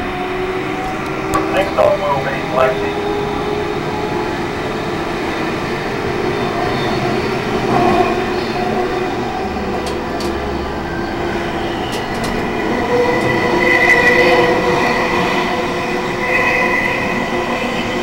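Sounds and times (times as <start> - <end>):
train wheels rumbling on rails: 3.6 - 16.0.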